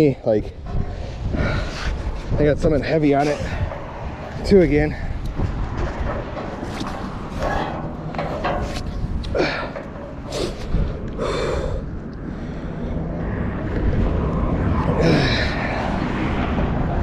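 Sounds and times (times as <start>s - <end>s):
steady low rumble: 0.0s - 17.0s
man grunting and breathing hard: 9.3s - 11.9s, 14.9s - 15.9s.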